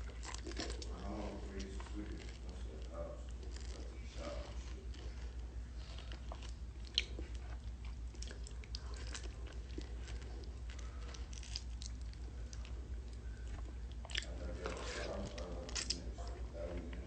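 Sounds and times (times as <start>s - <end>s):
steady low hum: 0.0s - 17.0s
wet chewing and biting: 0.0s - 17.0s
lip smacks: 6.0s - 14.4s.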